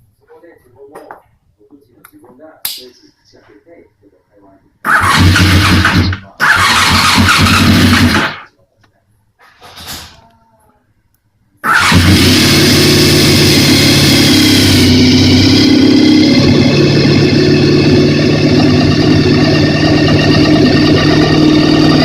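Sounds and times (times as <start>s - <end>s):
motorcycle engine starting and running: 4.9s - 8.5s, 11.6s - 22.0s.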